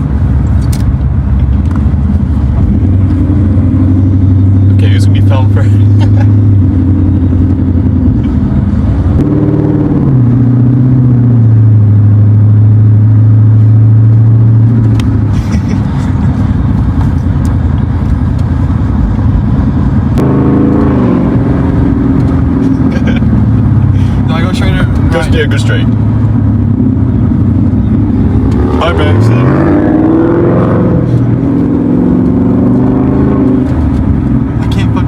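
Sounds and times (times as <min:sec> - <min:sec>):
car engine: 0:00.0 - 0:35.0
road noise inside car: 0:00.0 - 0:35.0.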